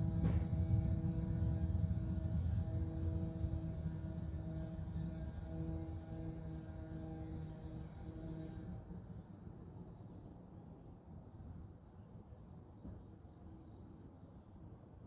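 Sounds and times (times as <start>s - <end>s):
low background rumble: 0.0s - 8.6s
steady multi-tone hum: 0.0s - 8.7s.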